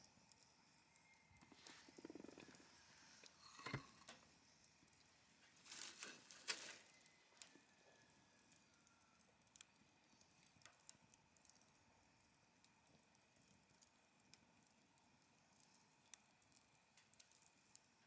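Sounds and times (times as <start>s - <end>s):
wood fire crackling: 0.1s - 18.0s.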